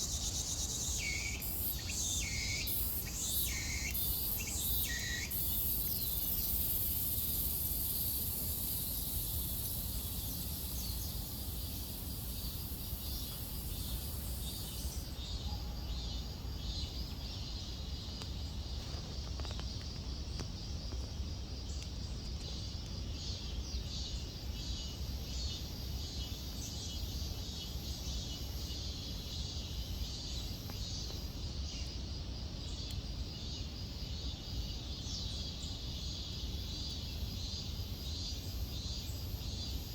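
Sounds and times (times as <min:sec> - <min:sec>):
high-pitched insect drone: 0:00.0 - 0:15.3
insects chirping: 0:00.0 - 0:39.9.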